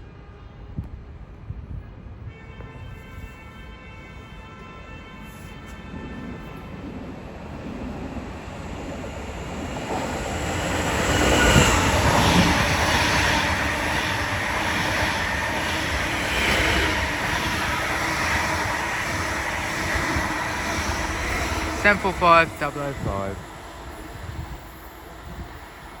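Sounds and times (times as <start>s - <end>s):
electric train passing: 5.8s - 26.0s.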